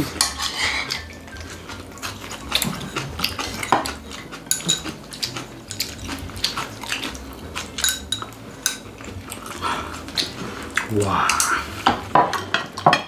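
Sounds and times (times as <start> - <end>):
eating sounds: 0.0 - 12.8
utensils clinking on plates: 0.0 - 13.0.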